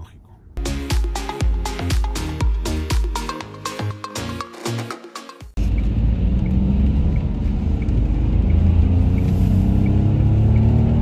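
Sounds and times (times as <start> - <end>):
music: 0.6 - 5.6
car engine drone: 5.6 - 11.0
road rumble: 5.6 - 11.0.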